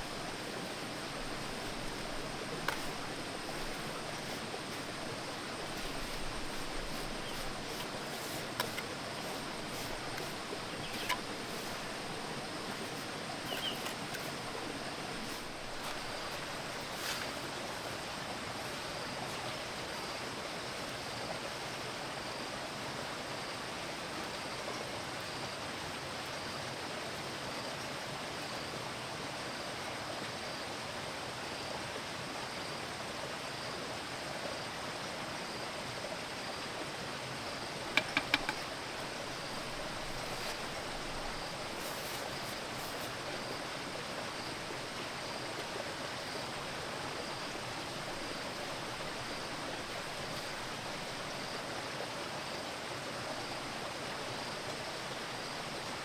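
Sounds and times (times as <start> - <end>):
quick sharp knocks: 37.9 - 38.7.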